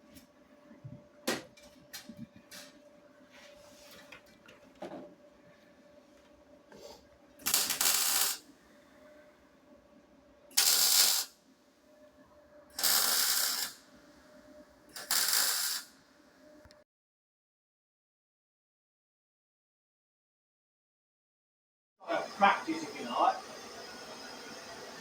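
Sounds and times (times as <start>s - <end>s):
welding arc bursts: 7.4s - 8.5s, 10.5s - 11.3s, 12.8s - 13.8s, 14.9s - 16.0s.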